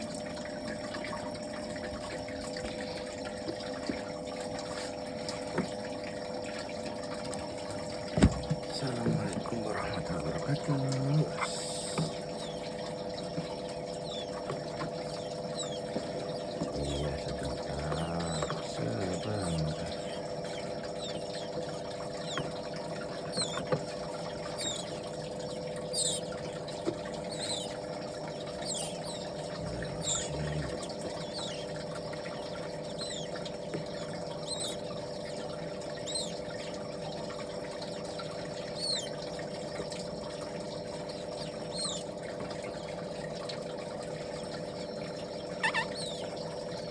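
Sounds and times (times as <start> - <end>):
steady hum: 0.0 - 42.4
baby birds peeping: 8.2 - 12.8, 13.4 - 36.8, 38.5 - 39.8, 41.4 - 42.1, 45.6 - 46.4.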